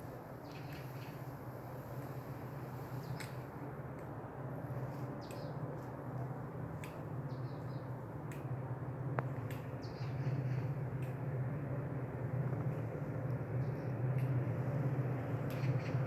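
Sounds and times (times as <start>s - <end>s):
small birds chirping: 5.2s - 5.6s.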